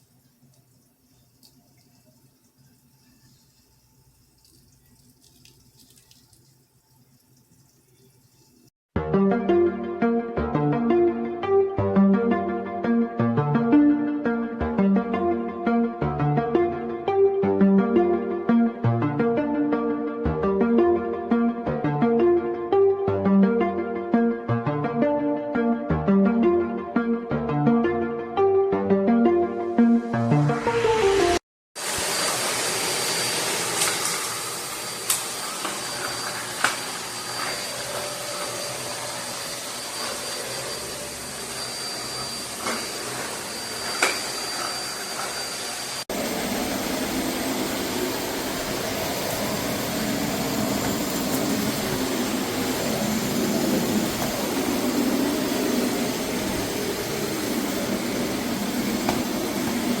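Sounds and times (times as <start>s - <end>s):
vacuum cleaner running: 30.5s - 60.0s.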